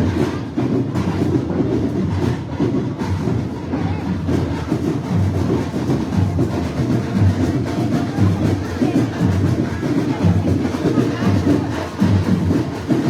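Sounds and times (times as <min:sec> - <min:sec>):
carnival parade music: 0:00.0 - 0:13.0
drums beating: 0:00.0 - 0:13.0.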